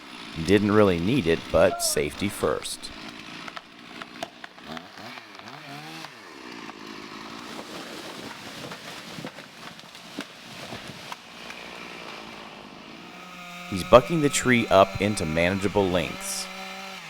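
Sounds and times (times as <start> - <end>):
distant chainsaw revving: 0.0 - 7.4, 11.5 - 17.0.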